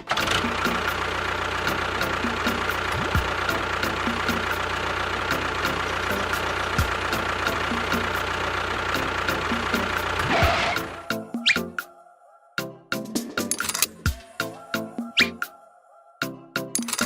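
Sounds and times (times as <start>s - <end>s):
small engine ticking: 0.0s - 11.1s.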